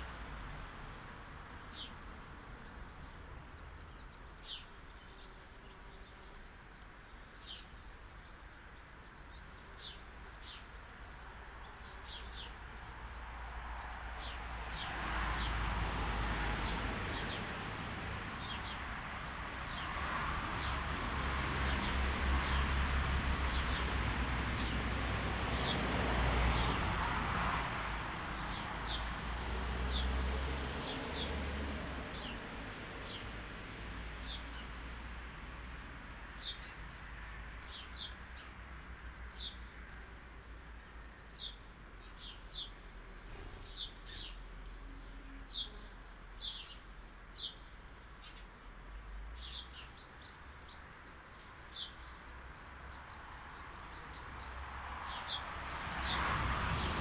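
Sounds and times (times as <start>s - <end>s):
background hiss and low rumble: 0.0s - 15.0s.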